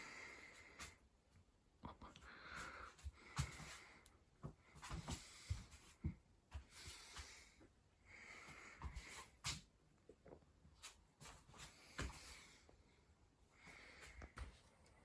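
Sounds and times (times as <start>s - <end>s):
faint breathing: 0.0s - 1.0s, 2.1s - 6.0s, 6.6s - 9.4s, 11.6s - 15.0s.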